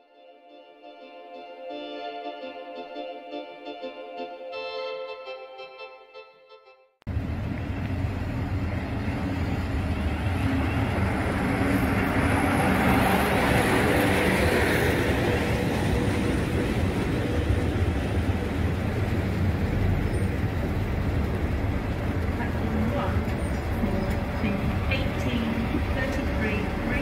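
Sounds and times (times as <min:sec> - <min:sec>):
train wheels rumbling on rails: 0:07.1 - 0:27.0.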